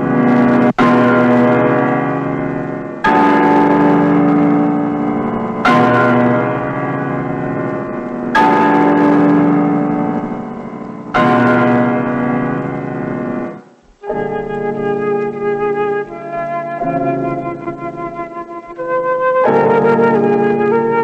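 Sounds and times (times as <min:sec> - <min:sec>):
large bell tolling: 0:00.0 - 0:15.6
flute melody: 0:13.4 - 0:21.0.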